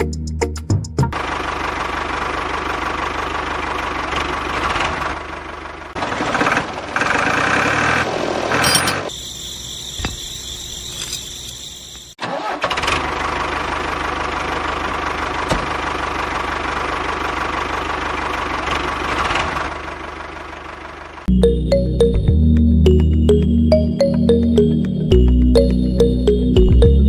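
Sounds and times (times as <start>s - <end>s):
engine-like running noise: 1.1s - 9.0s.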